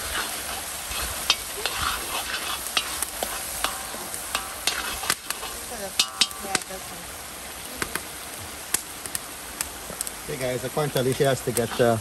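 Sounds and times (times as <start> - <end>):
metal spoon scraping a wok: 0.0 - 6.6
vegetables sizzling in a wok: 0.0 - 12.0.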